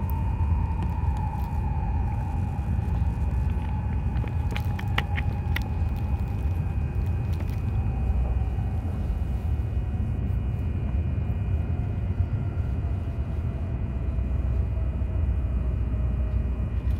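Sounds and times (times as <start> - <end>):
faint thin whine falling in pitch: 0.0 - 16.9
train low rumble: 0.0 - 16.9.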